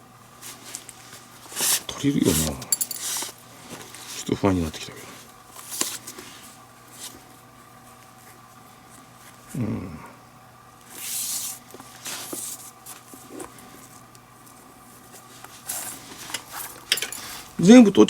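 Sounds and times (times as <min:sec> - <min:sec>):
low grunt: 0:09.5 - 0:10.2.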